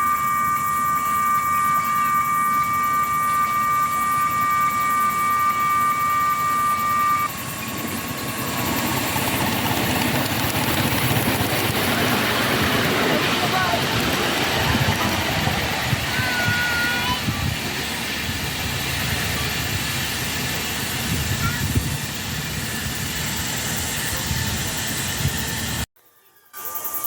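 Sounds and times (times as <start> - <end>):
steady high multi-tone note: 0.0 - 8.8
miniature locomotive beat: 0.0 - 27.0
rough rushing noise: 1.0 - 25.9.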